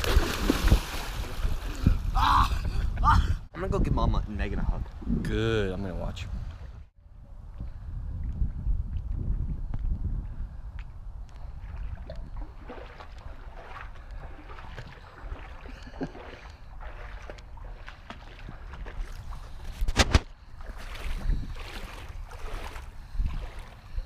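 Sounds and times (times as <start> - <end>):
water sloshing and splashing: 0.0 - 2.1, 11.5 - 24.0
wind rumbling on microphone: 0.0 - 24.0.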